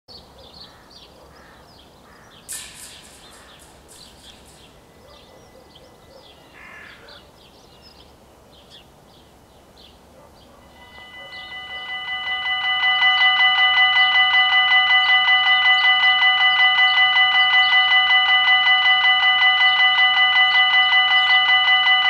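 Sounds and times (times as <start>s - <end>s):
small birds chirping: 0.1s - 11.9s
harsh repeated bird calls: 0.2s - 8.9s, 9.6s - 12.4s.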